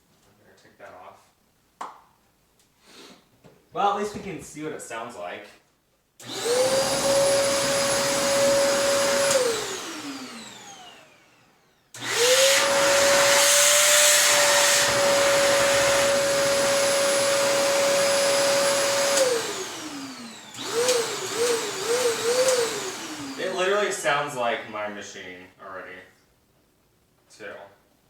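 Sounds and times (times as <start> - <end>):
vacuum cleaner motor whining: 6.2 - 24.7.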